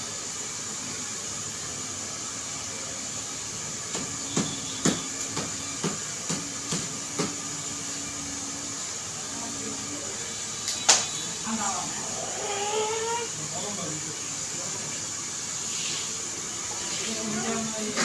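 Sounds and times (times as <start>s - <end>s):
steady hiss: 12.8s - 18.0s.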